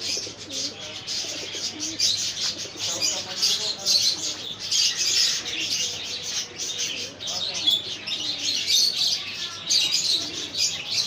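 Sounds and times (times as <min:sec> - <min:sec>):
low cooing calls: 0:00.0 - 0:03.2, 0:09.7 - 0:11.0
small birds chirping: 0:00.0 - 0:11.0.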